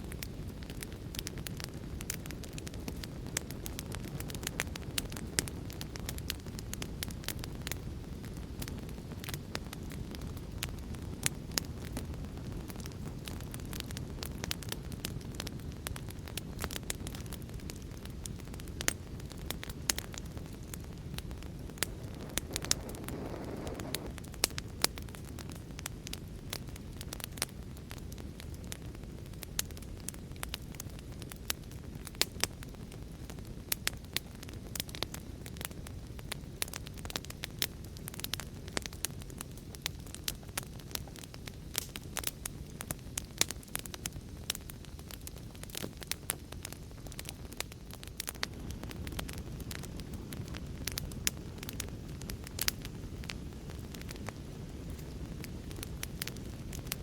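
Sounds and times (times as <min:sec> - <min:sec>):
fire popping and snapping: 0:00.0 - 0:57.0
low rumble of flames: 0:00.0 - 0:57.0
soft rushing noise: 0:21.7 - 0:24.1.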